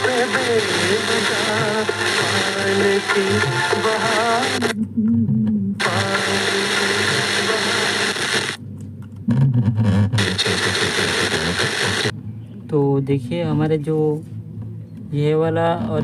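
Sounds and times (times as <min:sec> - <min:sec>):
steady hiss: 0:00.0 - 0:04.7, 0:05.8 - 0:08.6, 0:10.2 - 0:12.1
music with singing voice on speaker: 0:00.0 - 0:05.2, 0:05.8 - 0:08.6.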